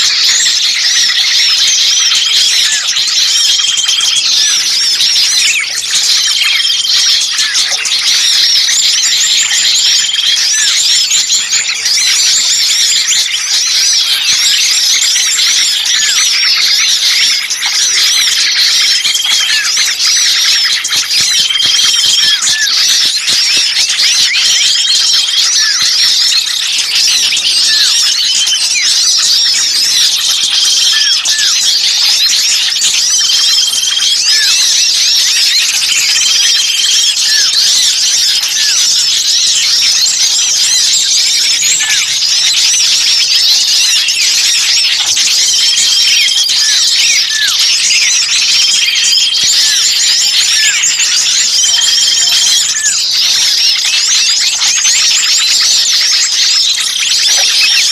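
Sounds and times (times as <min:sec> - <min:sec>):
chorus of small birds chirping: 0:00.0 - 0:57.9.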